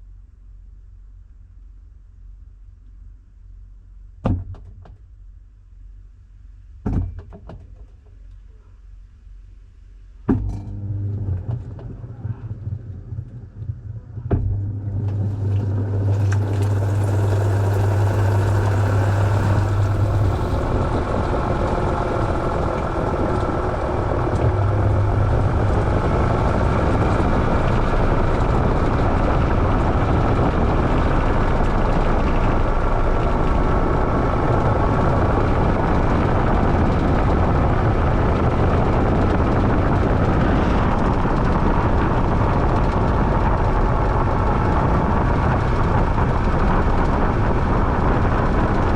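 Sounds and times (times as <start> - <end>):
low hum: 8.2 - 48.9
washing machine running: 10.3 - 48.9.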